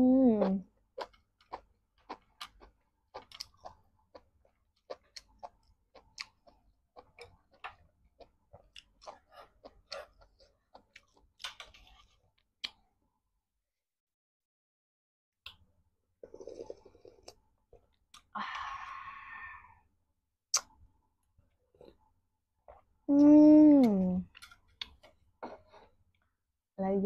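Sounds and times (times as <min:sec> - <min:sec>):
person chewing with wet smacks: 0:00.4 - 0:12.9, 0:22.6 - 0:23.0, 0:23.8 - 0:25.9.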